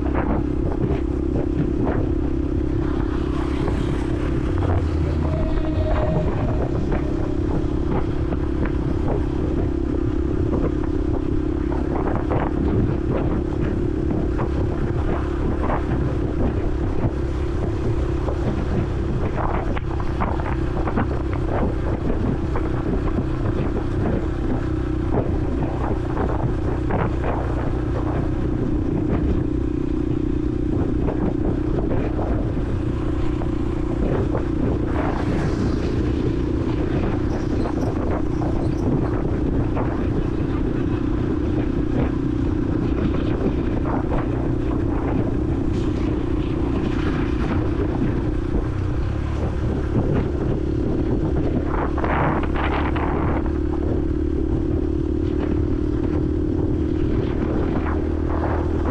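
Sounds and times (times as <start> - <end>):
motorcycle engine running: 0.0 - 58.9
wind buffeting microphone: 0.0 - 58.9.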